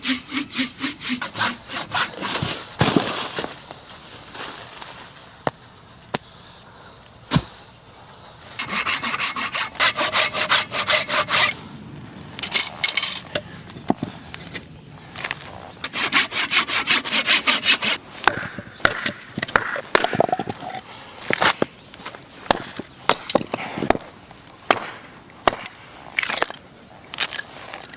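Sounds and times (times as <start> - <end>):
hand saw cutting a log: 0.0 - 2.7, 8.6 - 11.6, 15.8 - 18.0.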